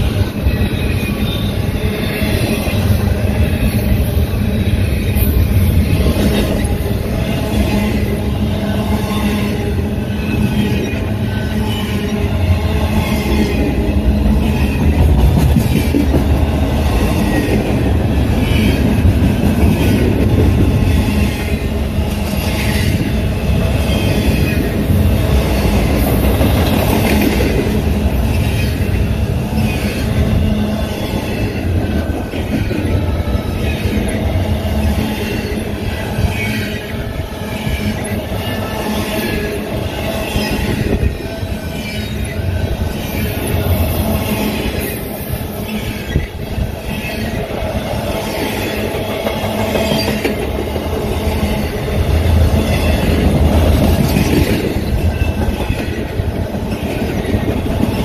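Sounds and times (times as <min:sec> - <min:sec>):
steel wheels squealing: 0:00.0 - 0:16.0, 0:28.1 - 0:50.4
heavy rumble of rail cars: 0:00.0 - 0:58.0.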